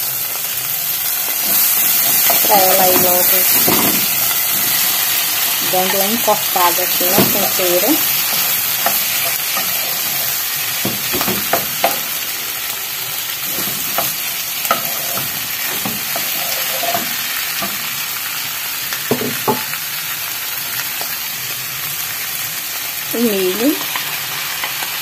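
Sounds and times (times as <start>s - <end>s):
food sizzling in a saucepan: 0.0s - 25.0s
spoon knocking and scraping pan: 1.4s - 12.4s, 13.2s - 18.0s, 19.0s - 19.8s.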